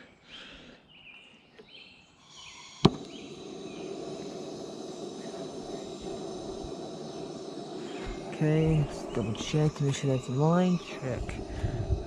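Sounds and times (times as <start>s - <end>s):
burner rushing: 2.5s - 12.0s
burner igniting pop: 2.8s - 10.0s.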